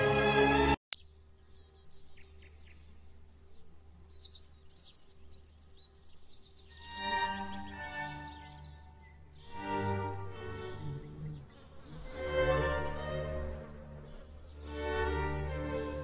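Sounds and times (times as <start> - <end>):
music: 0.0 - 0.8, 6.8 - 16.0
faint birdsong: 0.9 - 16.0
low hum: 1.0 - 16.0.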